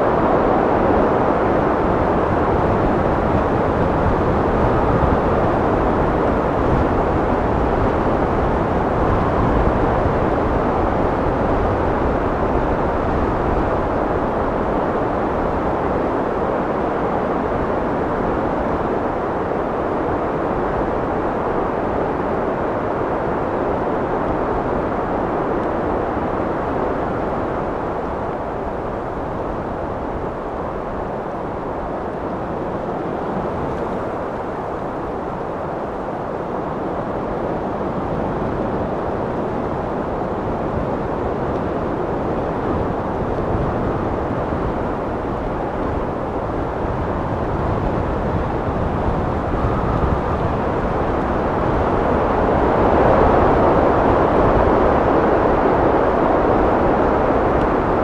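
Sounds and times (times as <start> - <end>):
wind blowing: 20.8 - 58.0.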